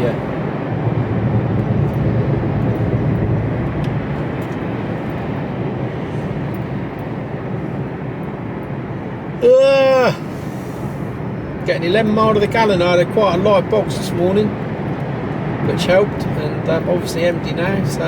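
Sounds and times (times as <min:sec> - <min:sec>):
truck engine rumble: 0:00.0 - 0:18.0.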